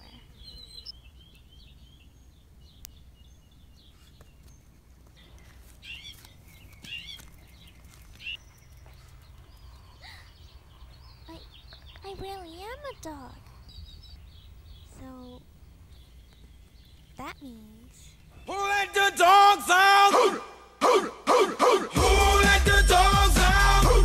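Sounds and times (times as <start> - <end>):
small birds chirping: 0.0 - 19.1.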